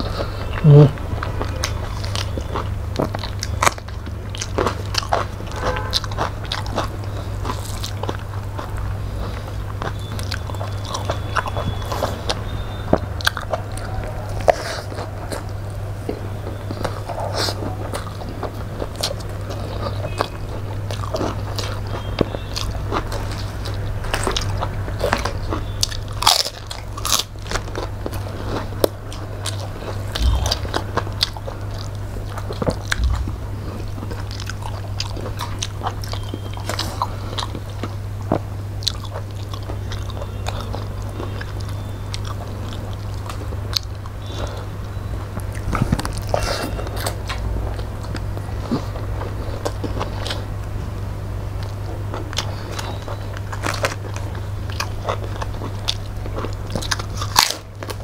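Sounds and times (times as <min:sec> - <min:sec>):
food crunching: 0:00.0 - 0:58.0
person chewing: 0:00.0 - 0:58.0
steady low hum: 0:00.0 - 0:58.0
lip smacks: 0:28.8 - 0:37.6.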